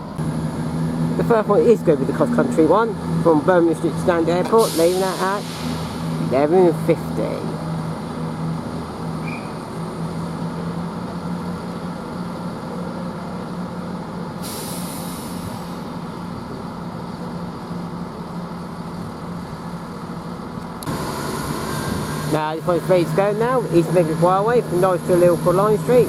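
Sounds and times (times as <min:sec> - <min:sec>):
diesel train idling hum: 0:00.0 - 0:26.0
air hiss: 0:04.5 - 0:06.2, 0:14.4 - 0:16.0.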